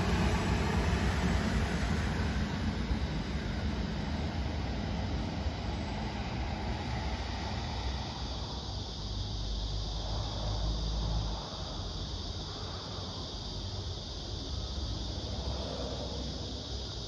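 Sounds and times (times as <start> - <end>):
train rumbling: 0.0 - 12.2.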